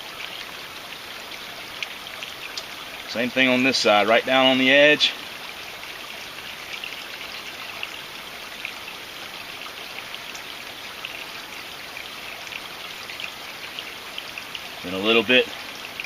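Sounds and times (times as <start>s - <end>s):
creek flowing: 0.0s - 16.0s
faint ticks: 2.5s - 2.7s.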